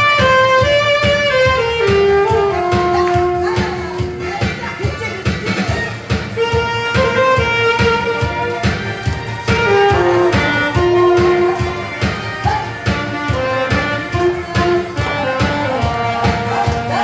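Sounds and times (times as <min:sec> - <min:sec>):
backing track with steady beat: 0:00.0 - 0:17.0
saxophone melody: 0:00.0 - 0:17.0.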